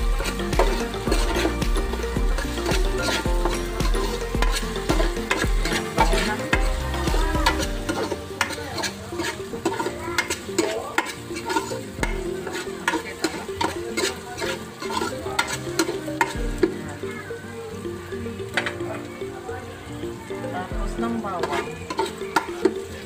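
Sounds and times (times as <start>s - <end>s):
ginger sizzling in hot oil: 0.0s - 23.0s
spatula scraping a pot: 0.1s - 16.8s, 21.4s - 23.0s.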